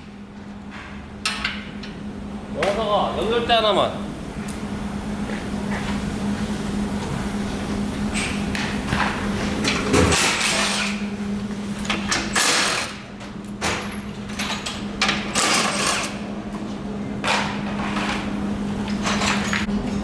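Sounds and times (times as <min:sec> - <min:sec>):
steady low hum: 0:00.0 - 0:20.0
knocks and clatter of parts: 0:18.9 - 0:19.7.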